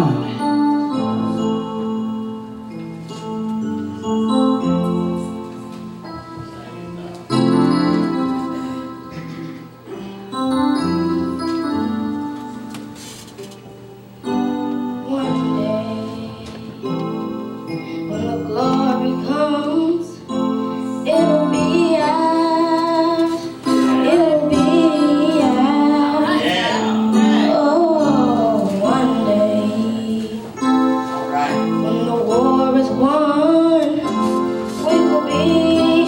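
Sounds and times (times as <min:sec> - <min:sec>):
piano accompaniment: 0:00.0 - 0:36.0
person singing: 0:14.2 - 0:36.0.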